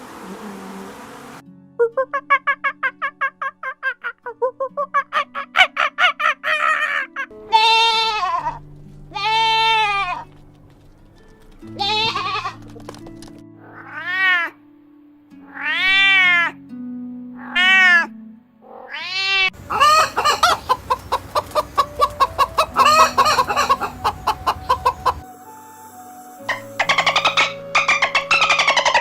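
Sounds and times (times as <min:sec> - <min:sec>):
background music: 0:01.4 - 0:29.0
animal wailing calls: 0:17.4 - 0:25.2, 0:26.5 - 0:29.0.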